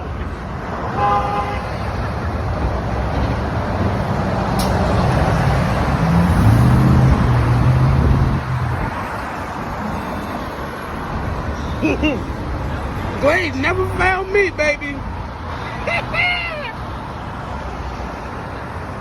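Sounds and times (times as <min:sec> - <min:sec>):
street traffic noise: 0:00.0 - 0:19.0
motor vehicle engine passing: 0:02.1 - 0:09.2.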